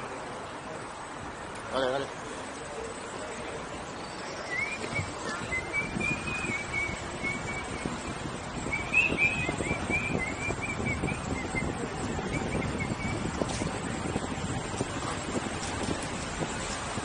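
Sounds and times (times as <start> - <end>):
wind noise on microphone: 4.2 - 17.0.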